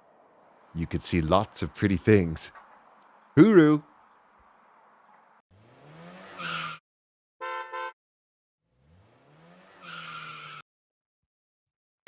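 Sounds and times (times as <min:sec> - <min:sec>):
car engine revving: 0:04.6 - 0:06.8, 0:08.7 - 0:10.6
car horn toots: 0:07.4 - 0:08.0.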